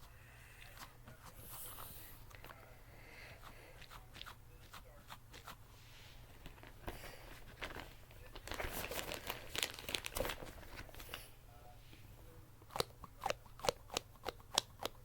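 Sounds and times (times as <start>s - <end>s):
crinkly material rustling: 6.0s - 11.4s.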